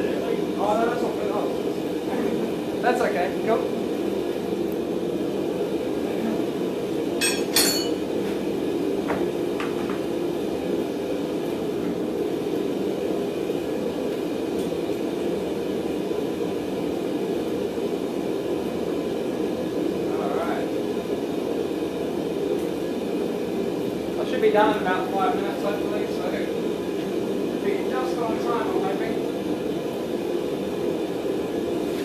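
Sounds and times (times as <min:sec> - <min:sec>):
metal-on-metal clinks: 0:07.2 - 0:08.0.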